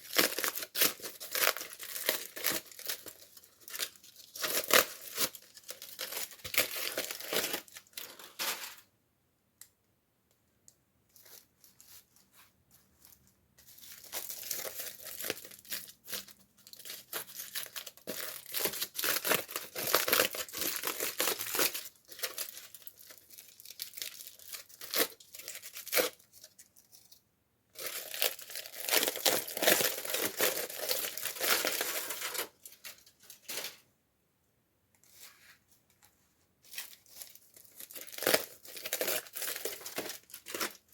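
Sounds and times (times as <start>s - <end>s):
packaging torn and crinkled: 0.0s - 8.8s, 13.8s - 27.2s, 27.8s - 33.8s, 36.7s - 40.9s.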